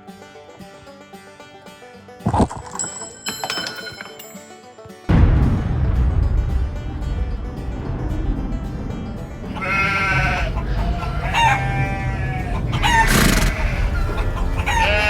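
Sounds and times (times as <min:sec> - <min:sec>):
steady low background: 0:05.1 - 0:12.9
long pitched animal calls: 0:09.6 - 0:15.0.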